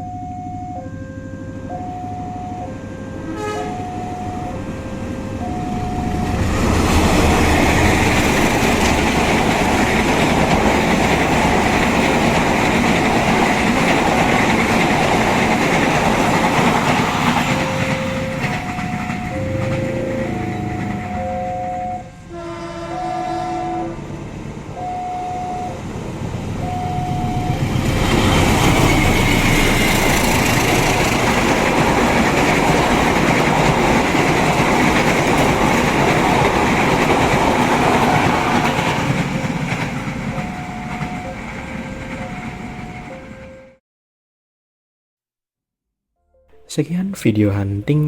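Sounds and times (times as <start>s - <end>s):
level-crossing alarm: 0.0s - 26.0s, 26.6s - 43.8s
train passing: 0.0s - 43.8s
train horn: 2.6s - 7.8s, 17.6s - 25.7s.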